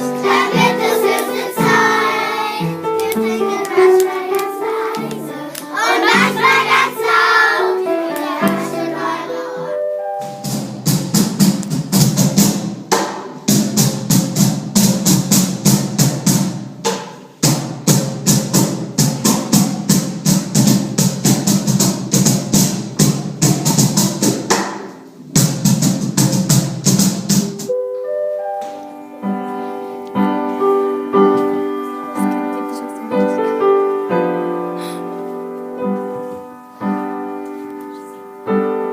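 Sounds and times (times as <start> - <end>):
children singing: 0.0 - 9.8
piano notes: 0.0 - 17.0, 17.6 - 38.9.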